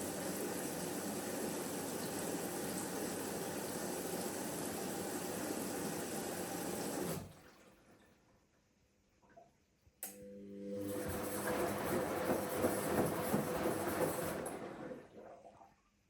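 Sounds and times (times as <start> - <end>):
water running: 0.0 - 8.0.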